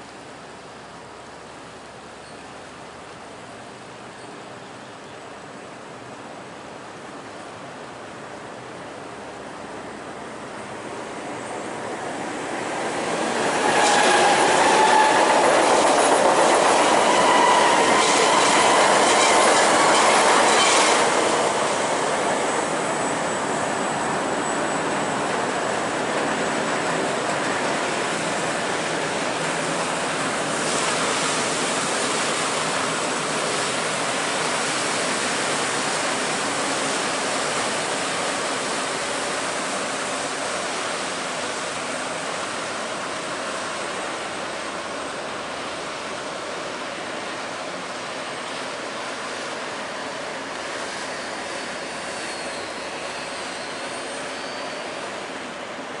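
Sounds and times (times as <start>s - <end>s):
train rumbling: 7.0s - 56.0s
wheels squealing: 51.1s - 55.1s.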